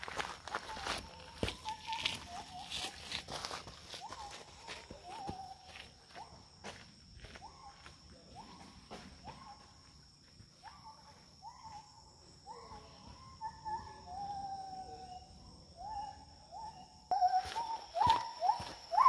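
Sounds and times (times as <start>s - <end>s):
high-pitched insect drone: 10.9s - 19.0s
bird whistled hoots: 12.6s - 19.0s.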